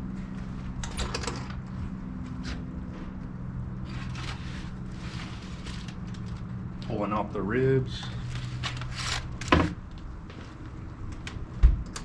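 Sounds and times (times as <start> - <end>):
low hum: 0.0 - 12.0
metal rack scrapes and rattles: 3.8 - 6.5.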